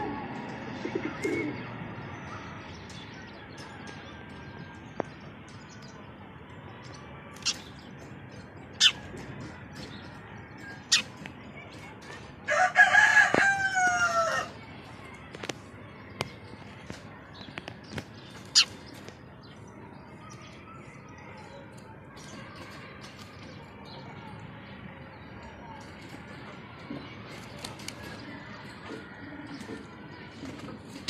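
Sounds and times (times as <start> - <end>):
rooster crowing: 12.5 - 14.5.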